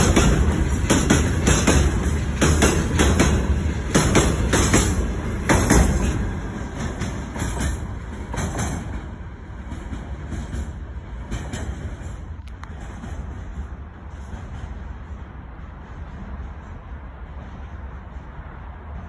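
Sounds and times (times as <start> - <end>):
freight wagon wheels clickety-clack: 0.0 - 14.8.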